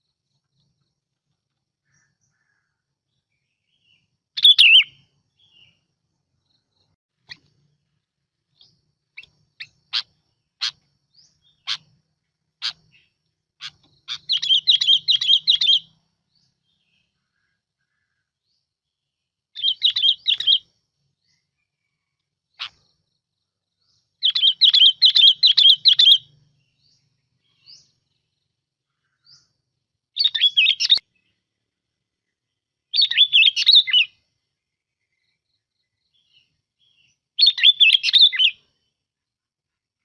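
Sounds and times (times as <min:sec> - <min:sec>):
bulbul warbling song: 0:04.4 - 0:05.7, 0:12.6 - 0:16.0, 0:24.2 - 0:26.4, 0:30.2 - 0:31.1.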